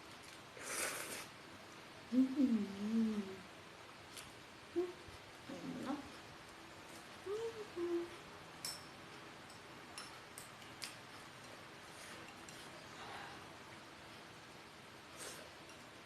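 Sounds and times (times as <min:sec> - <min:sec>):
utensils clinking on tableware: 0:08.6 - 0:10.9.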